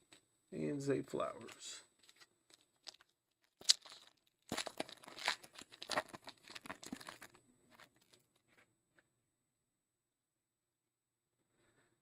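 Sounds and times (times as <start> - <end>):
foil wrapper tearing and crinkling: 2.0 - 8.3.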